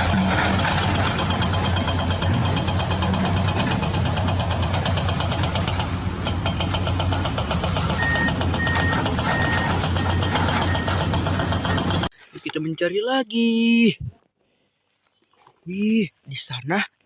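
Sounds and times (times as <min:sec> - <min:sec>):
vehicle engine chugging: 0:00.0 - 0:12.1
reversing alarm beeping: 0:07.9 - 0:12.1.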